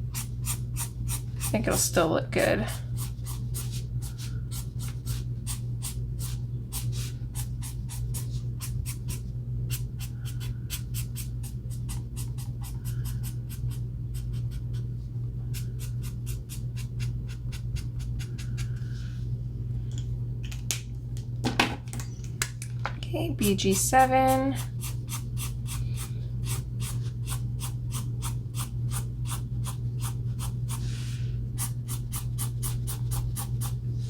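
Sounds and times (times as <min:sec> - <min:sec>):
steady low hum: 0:00.0 - 0:34.0
marker strokes on paper: 0:29.7 - 0:31.2.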